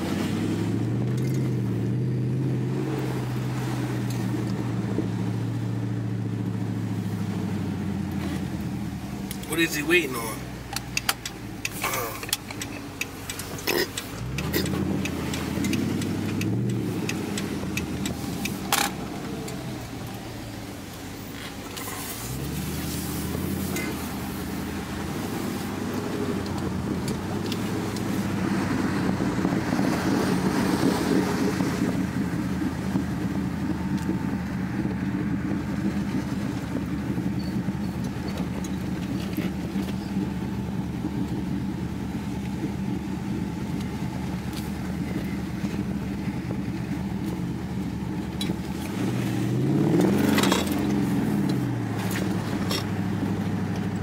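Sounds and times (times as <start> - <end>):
road noise: 0.0 - 54.0
car engine revving from inside cabin: 14.2 - 19.9, 22.1 - 54.0.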